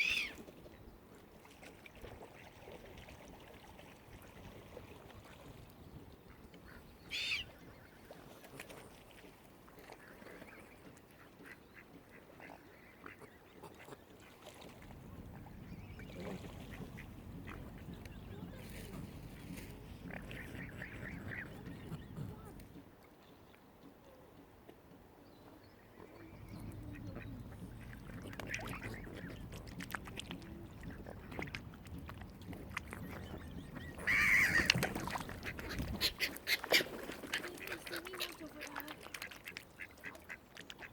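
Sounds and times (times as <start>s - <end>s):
swans giving soft calls: 0.0s - 0.6s, 6.2s - 14.6s, 15.4s - 22.7s, 25.8s - 31.8s, 32.6s - 40.9s
waterfowl calling: 6.7s - 7.8s, 26.1s - 29.6s, 33.0s - 40.9s.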